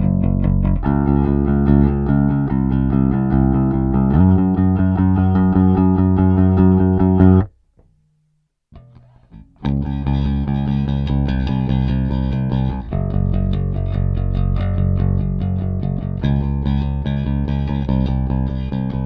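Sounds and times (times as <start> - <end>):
picked bass guitar notes: 0.0 - 7.5, 8.7 - 19.0.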